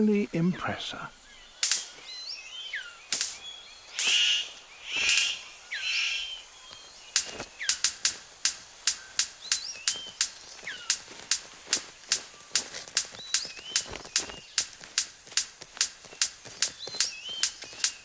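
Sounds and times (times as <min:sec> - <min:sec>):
harsh rasping bird calls: 0:00.0 - 0:18.0
bird sharp clicks: 0:01.4 - 0:18.0
thin bird whistles: 0:01.6 - 0:06.8.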